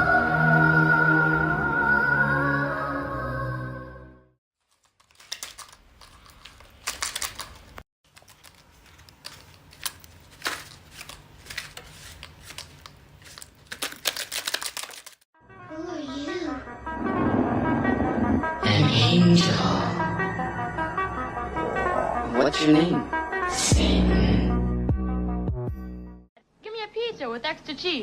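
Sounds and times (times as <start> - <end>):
music: 0.0 - 4.4, 15.4 - 26.3
stiff paper crackling: 4.6 - 15.3.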